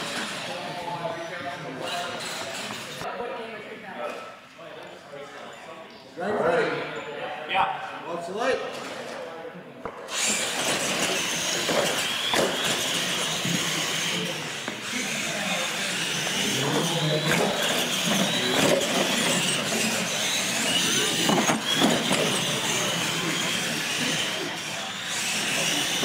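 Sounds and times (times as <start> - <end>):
toy truck motor whine: 1.5 - 3.0, 10.1 - 26.0.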